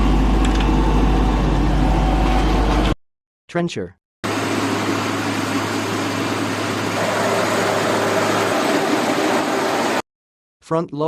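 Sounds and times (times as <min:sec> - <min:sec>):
trencher engine drone: 0:00.0 - 0:02.9, 0:04.3 - 0:10.0
low hum: 0:04.3 - 0:10.0
mechanical rush: 0:06.8 - 0:10.0.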